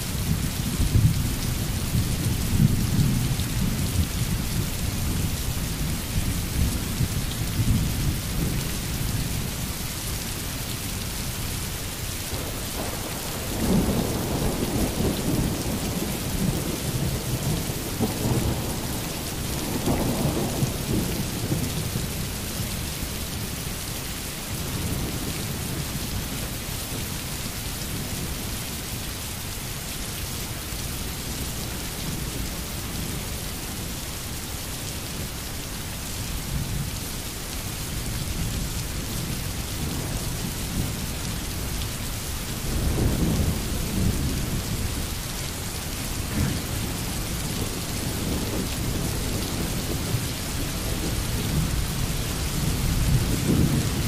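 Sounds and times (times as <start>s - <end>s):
steady rain hissing: 0.0s - 54.0s
thunder rumbling: 12.3s - 22.0s, 45.9s - 54.0s.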